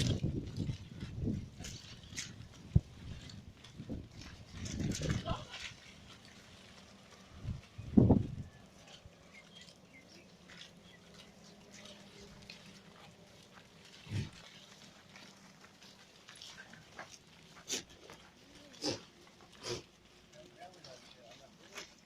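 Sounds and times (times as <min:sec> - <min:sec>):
faint rustling and clicking: 0:00.0 - 0:22.0
goats making low calls: 0:10.4 - 0:20.4.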